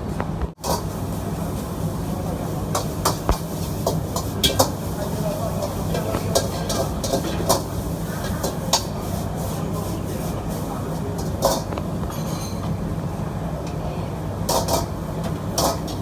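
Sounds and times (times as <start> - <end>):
gas wok burner roaring: 0.0 - 16.0.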